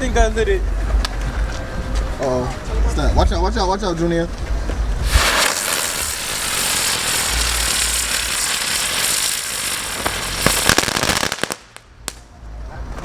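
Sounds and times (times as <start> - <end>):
firework crackling hiss: 5.0 - 12.3
firework sharp cracks: 5.0 - 12.3.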